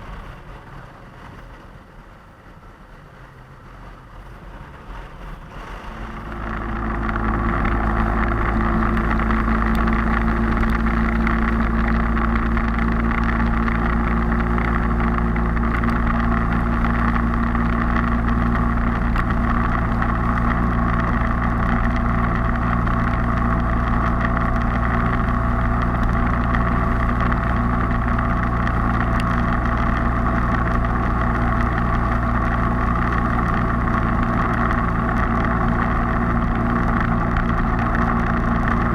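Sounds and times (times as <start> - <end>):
road and wind noise: 0.0 - 38.9
motorcycle engine running: 4.9 - 38.9.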